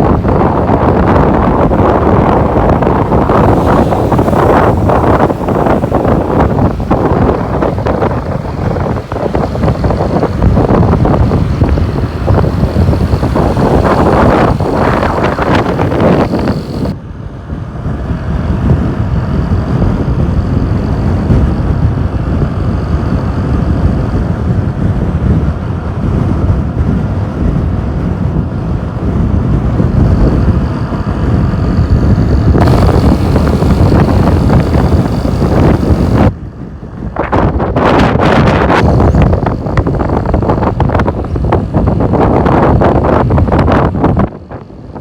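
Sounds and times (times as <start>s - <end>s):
motorcycle rumbling: 0.0s - 45.0s
wind buffeting microphone: 0.0s - 45.0s.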